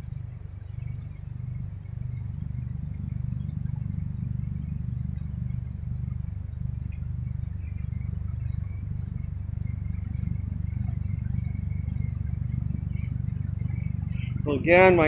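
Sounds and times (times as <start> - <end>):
crickets chirping: 0.0 - 15.0
steady low hum: 0.0 - 15.0.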